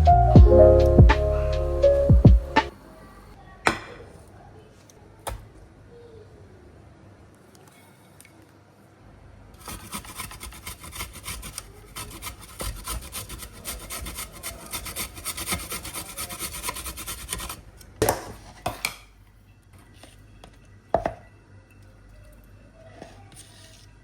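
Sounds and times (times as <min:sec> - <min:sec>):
kitchen tool rasping food: 0:09.6 - 0:17.7.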